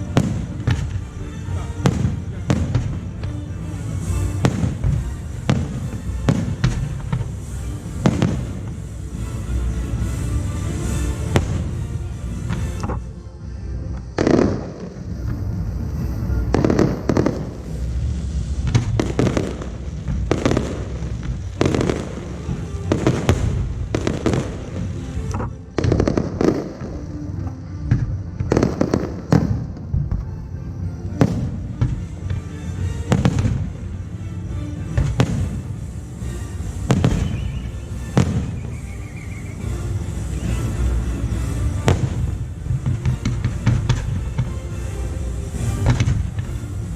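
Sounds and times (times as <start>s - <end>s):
firework shells bursting: 36.8s - 39.4s.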